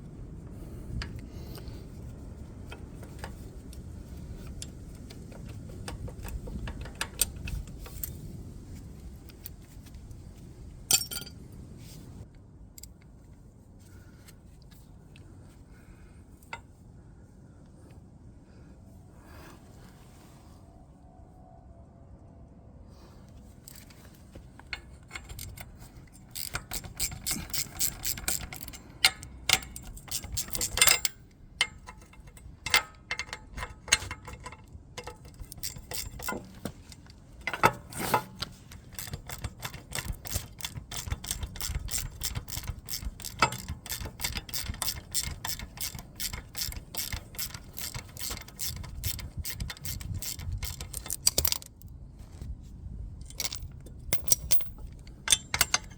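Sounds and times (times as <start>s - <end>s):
ratchet wrench clicking: 2.7s - 8.1s, 24.7s - 51.9s, 53.2s - 55.9s.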